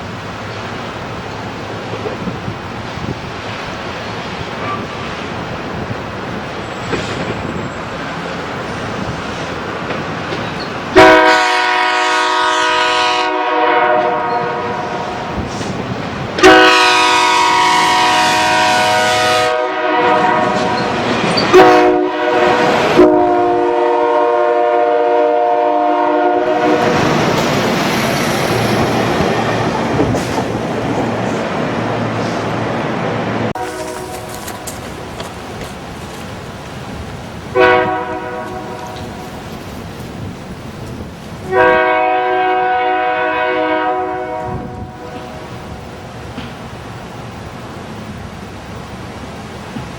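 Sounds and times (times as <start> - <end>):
clickety-clack of train cars: 0.0 - 49.9
train rumbling: 0.0 - 49.9
locomotive air horn blasts: 11.0 - 15.4, 16.4 - 27.0, 33.6 - 34.5, 37.5 - 39.2, 41.5 - 45.4.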